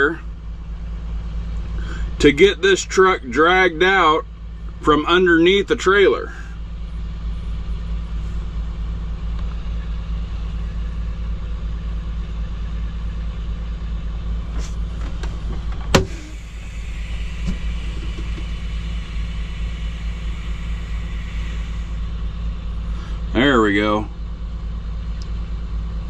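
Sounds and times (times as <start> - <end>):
diesel truck engine idling: 0.0 - 26.0
air hissing into brakes: 14.4 - 23.3.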